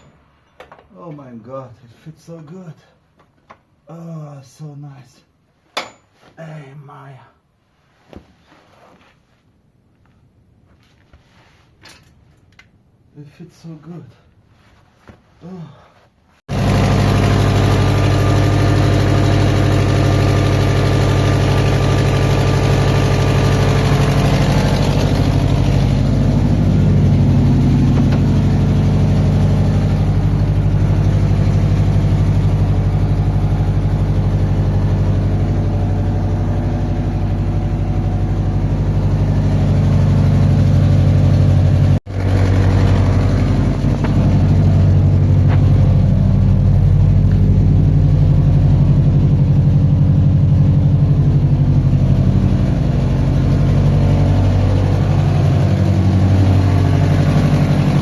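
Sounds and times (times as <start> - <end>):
car engine idling: 16.5 - 58.0.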